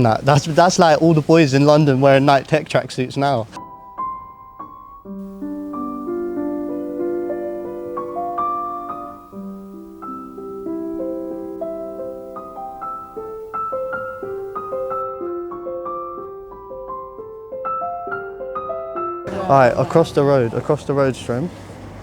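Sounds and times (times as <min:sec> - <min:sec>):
soft piano music: 0:03.6 - 0:21.0.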